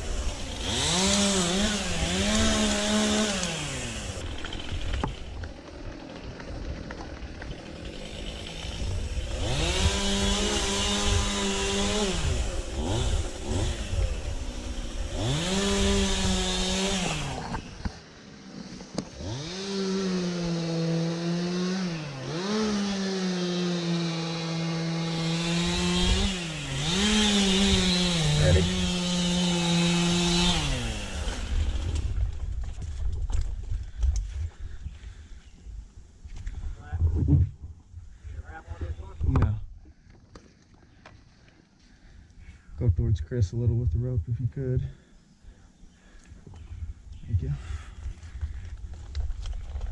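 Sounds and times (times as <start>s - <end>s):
chainsaw revving: 0.0s - 32.3s.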